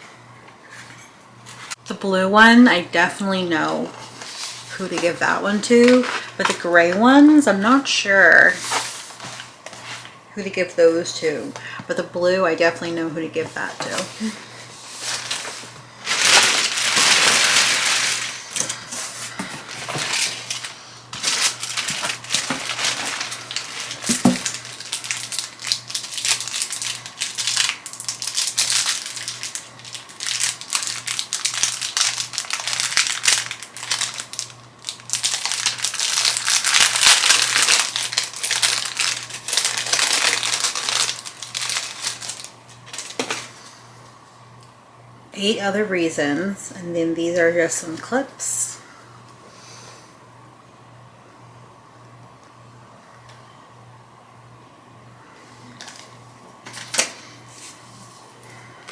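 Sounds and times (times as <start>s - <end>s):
packaging crumpling: 4.0s - 7.4s, 13.6s - 43.8s.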